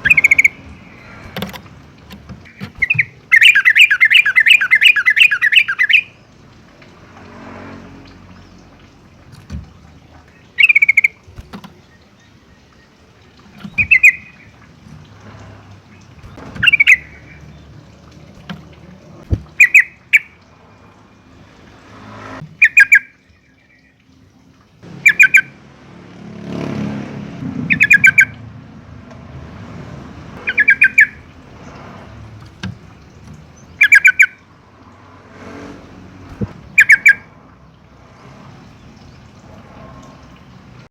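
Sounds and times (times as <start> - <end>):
bird stuttering calls: 2.4 - 6.1, 13.6 - 14.5, 16.2 - 17.5, 19.5 - 20.4, 22.6 - 23.1, 25.0 - 25.5, 27.7 - 28.4, 30.4 - 31.2, 33.8 - 34.4, 36.3 - 37.3.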